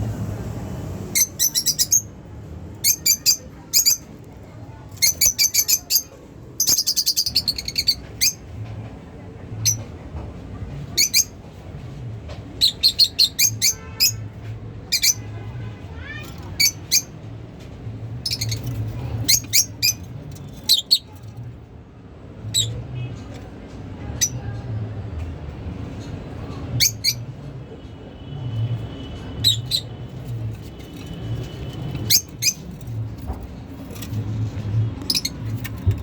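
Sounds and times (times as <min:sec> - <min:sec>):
lovebirds chirping: 0:01.2 - 0:02.1, 0:05.0 - 0:08.4, 0:18.2 - 0:21.2, 0:29.4 - 0:34.2, 0:35.0 - 0:36.0.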